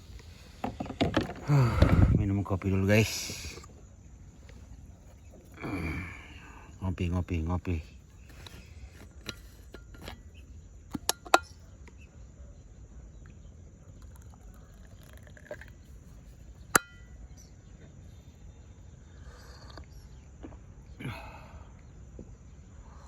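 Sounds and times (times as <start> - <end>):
cup and container clicks and knocks: 10.9 - 11.5
ringing clink: 16.8 - 17.2.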